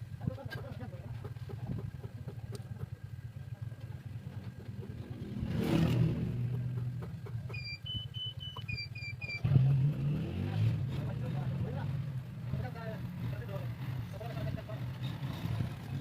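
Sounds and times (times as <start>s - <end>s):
vehicle engine rumbling: 0.0s - 16.0s
high electronic beeps: 7.5s - 9.5s.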